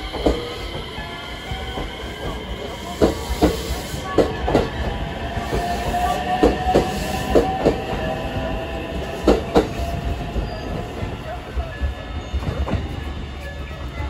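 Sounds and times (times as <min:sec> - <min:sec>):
train rumble: 0:00.0 - 0:14.0
train wheels clacking over rail joints: 0:01.7 - 0:08.1.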